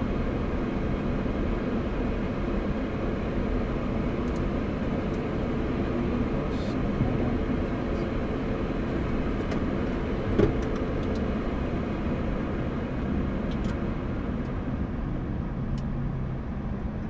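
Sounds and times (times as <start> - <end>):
airliner cockpit rumble and hum: 0.0 - 17.0.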